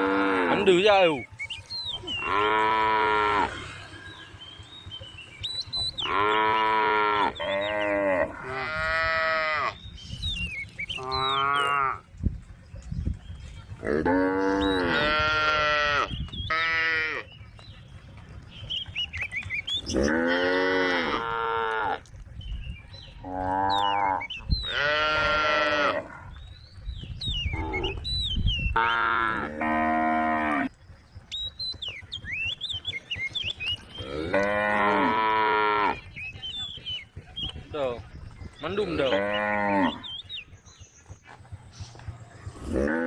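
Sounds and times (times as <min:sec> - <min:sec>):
cow mooing: 0:00.0 - 0:00.8, 0:02.1 - 0:03.9, 0:06.0 - 0:09.8, 0:11.0 - 0:12.0, 0:13.8 - 0:17.2, 0:19.8 - 0:22.0, 0:23.2 - 0:26.3, 0:28.8 - 0:30.7, 0:34.0 - 0:36.0, 0:39.0 - 0:40.0, 0:42.6 - 0:43.0.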